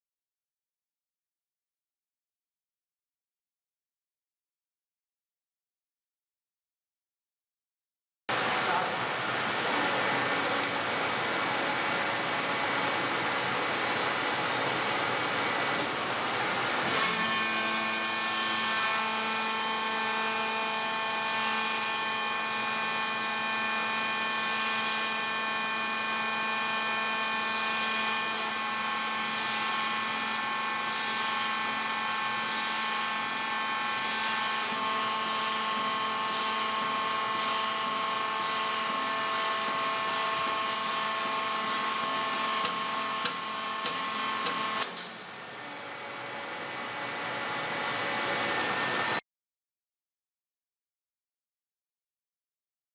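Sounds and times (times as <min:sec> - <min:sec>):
high whine of machine drive: 0:08.3 - 0:49.2.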